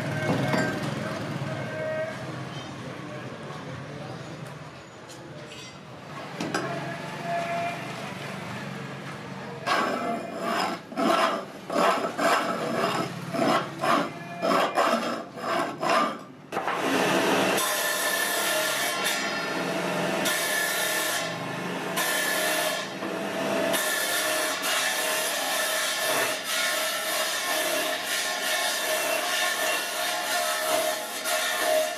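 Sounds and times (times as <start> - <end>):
hand tool strokes on wood: 9.7 - 16.3.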